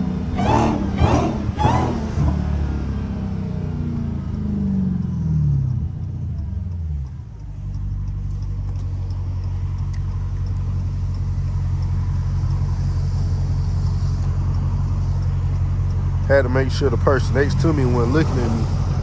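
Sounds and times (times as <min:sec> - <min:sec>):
car engine coasting down: 0:00.0 - 0:19.0
deep engine idle: 0:07.9 - 0:19.0.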